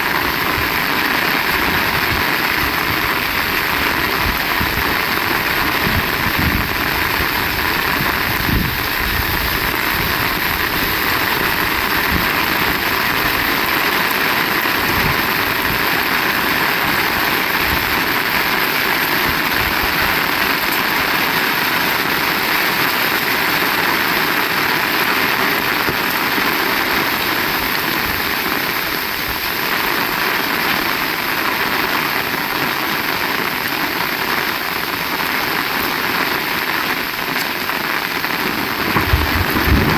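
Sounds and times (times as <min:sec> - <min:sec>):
heavy rain hissing: 0:00.0 - 0:39.9
wind gusts rumbling: 0:00.2 - 0:13.4, 0:38.3 - 0:39.9.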